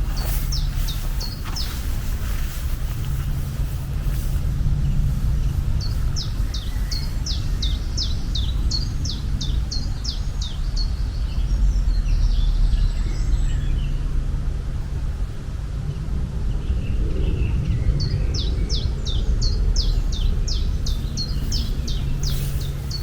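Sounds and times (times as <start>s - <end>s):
faint bird calls: 0.0s - 10.6s, 19.5s - 23.0s
low outdoor rumble: 0.0s - 23.0s
songbird singing: 0.0s - 23.0s.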